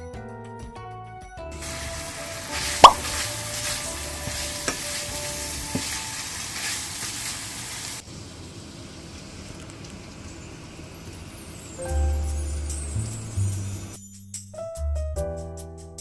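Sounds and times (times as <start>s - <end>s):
meat sizzling in frying pan: 1.6s - 13.9s.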